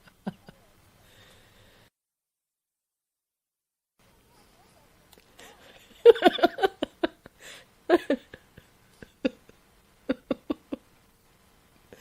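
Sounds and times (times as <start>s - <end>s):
woman laughing: 0.0s - 0.8s, 5.4s - 10.9s.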